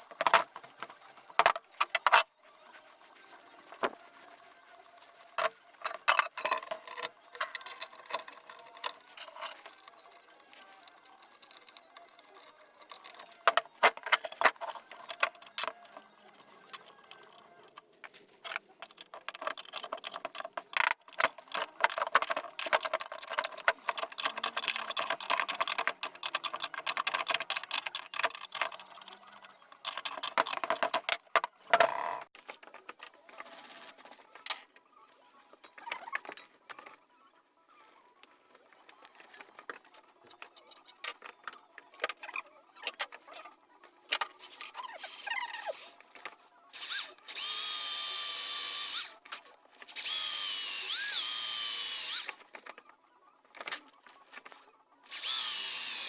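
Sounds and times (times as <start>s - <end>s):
metal parts clinking and scraping: 0.0s - 2.3s, 5.4s - 34.8s, 44.1s - 52.8s, 53.5s - 56.0s.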